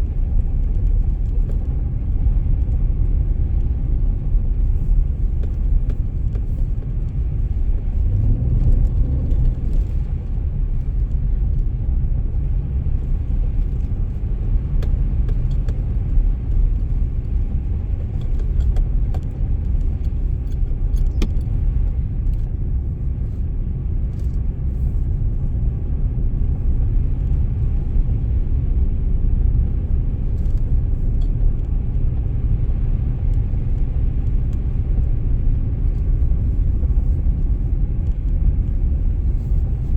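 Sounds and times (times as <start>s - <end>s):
car driving on snowy road: 0.0s - 39.9s
faint clicks and rattles: 13.0s - 22.5s.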